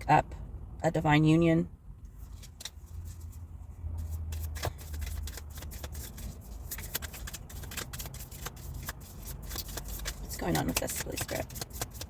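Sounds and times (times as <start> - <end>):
cards being shuffled: 2.2 - 3.4, 4.0 - 12.0.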